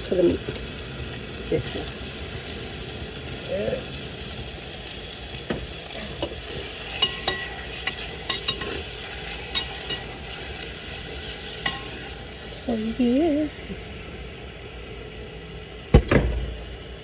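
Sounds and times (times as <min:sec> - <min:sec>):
chicken sizzling in a pan: 0:00.0 - 0:17.0
utensil clinking against pan: 0:06.9 - 0:08.8, 0:09.5 - 0:10.1, 0:11.6 - 0:12.0.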